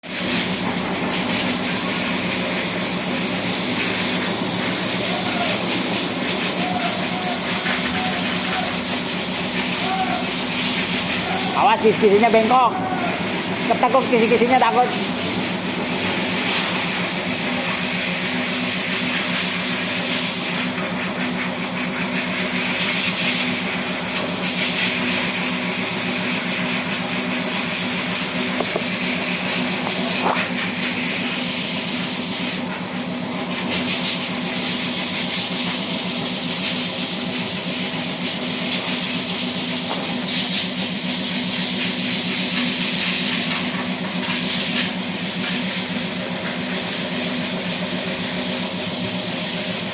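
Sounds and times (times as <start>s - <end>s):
loud hiss: 0.1s - 33.0s
machine humming: 0.2s - 33.2s.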